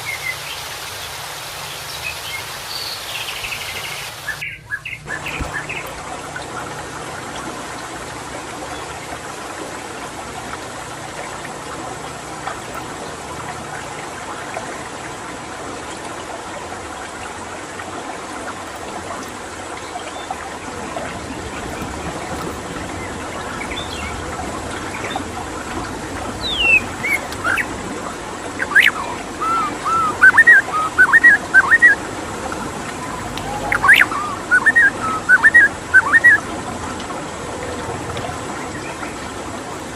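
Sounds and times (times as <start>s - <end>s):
trickling water: 0.0s - 39.9s
bird singing whistled notes: 26.4s - 27.7s, 28.5s - 32.1s, 33.0s - 36.4s.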